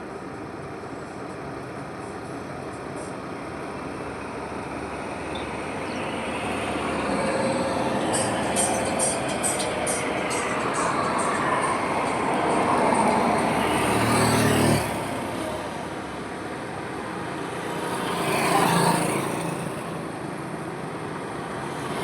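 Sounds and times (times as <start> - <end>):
heavy vehicle engine: 0.0 - 22.0
highway traffic passing: 0.0 - 22.0.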